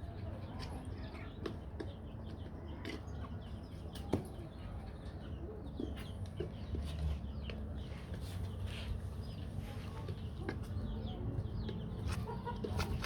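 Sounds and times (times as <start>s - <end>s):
chickens clucking: 9.4s - 13.0s.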